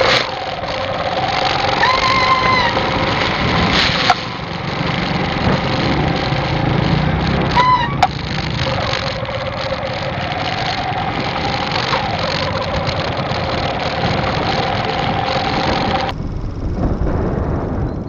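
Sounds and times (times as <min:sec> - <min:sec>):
motorcycle engine humming: 0:00.0 - 0:18.0
wind rush on microphone: 0:00.0 - 0:18.0.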